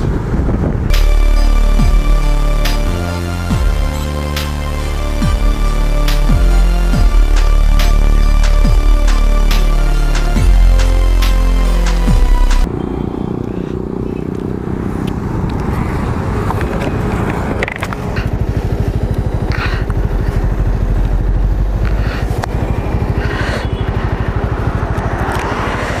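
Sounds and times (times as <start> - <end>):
wind noise on microphone: 0.0 - 0.9
motorcycle engine running: 0.0 - 26.0.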